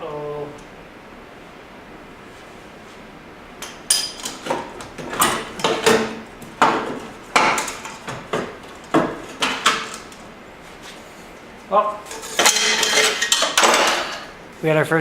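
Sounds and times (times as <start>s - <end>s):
hand tools knocking on metal: 3.9s - 10.0s.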